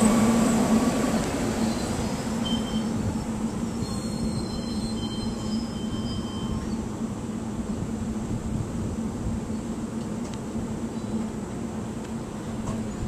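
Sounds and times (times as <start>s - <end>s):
electric train hum and rumble: 0.0s - 13.0s
faint high wheel squeals: 1.4s - 7.0s.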